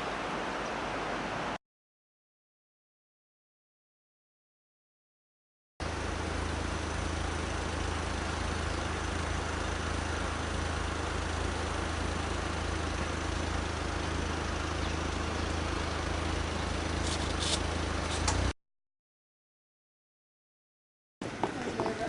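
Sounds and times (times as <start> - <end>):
engine hum: 5.8 - 18.6, 21.2 - 22.0.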